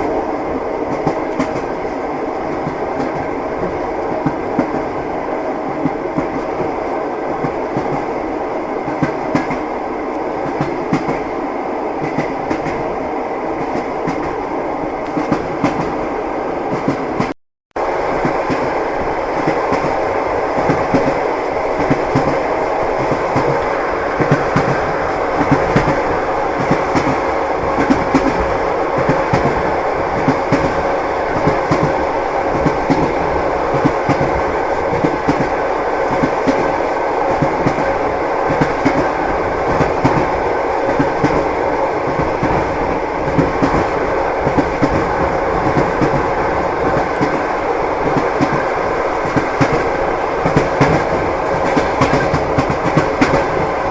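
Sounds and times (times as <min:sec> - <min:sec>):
train rumbling ride noise: 0:00.0 - 0:53.9
train wheels clacking over rail joints: 0:20.6 - 0:41.5, 0:42.1 - 0:53.9.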